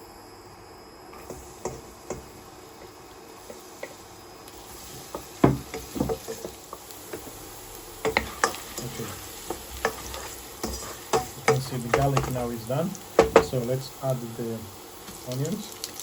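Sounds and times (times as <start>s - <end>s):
garlic sizzling in oil: 1.0s - 16.0s
utensil knocking against pan: 5.1s - 7.3s, 9.5s - 12.4s, 13.2s - 13.6s.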